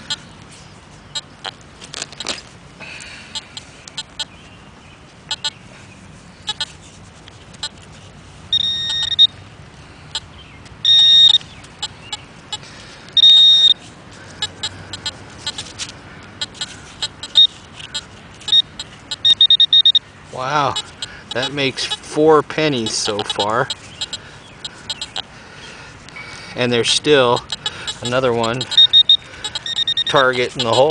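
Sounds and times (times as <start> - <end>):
metal detector pinpointer beeps: 1.1 - 1.5, 5.3 - 5.6, 6.5 - 6.8, 7.6 - 7.8, 8.5 - 9.4, 10.1 - 12.6, 13.2 - 13.8, 14.4 - 15.7, 16.4 - 20.0, 20.6 - 22.1, 22.8 - 25.2, 27.2 - 30.9.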